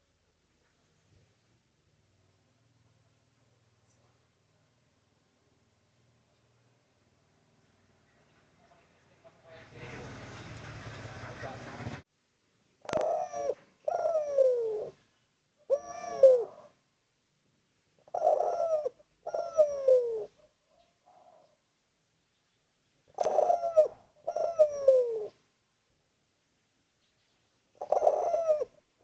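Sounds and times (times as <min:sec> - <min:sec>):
dove cooing: 0:12.8 - 0:15.0, 0:15.6 - 0:16.8, 0:18.0 - 0:21.6, 0:23.1 - 0:25.4, 0:27.8 - 0:28.9.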